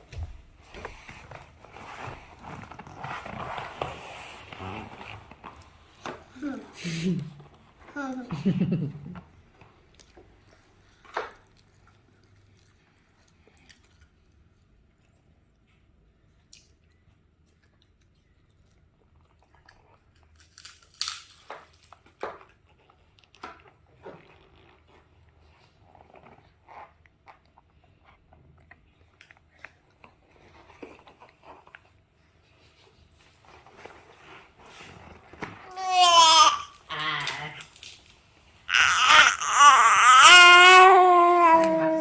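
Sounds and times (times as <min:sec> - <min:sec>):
child chewing food: 0:08.8 - 0:35.7.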